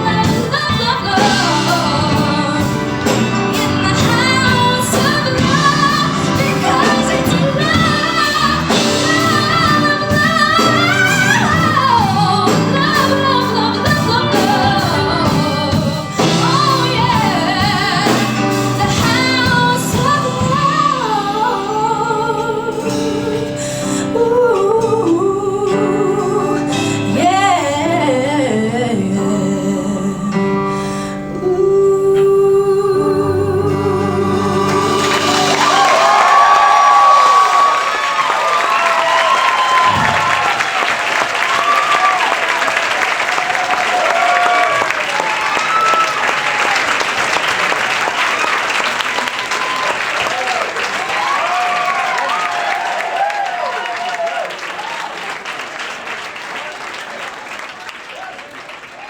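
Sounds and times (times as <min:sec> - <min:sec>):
woman singing pop-soul ballad: 0:00.0 - 0:36.2
instrumental accompaniment: 0:00.0 - 0:37.7.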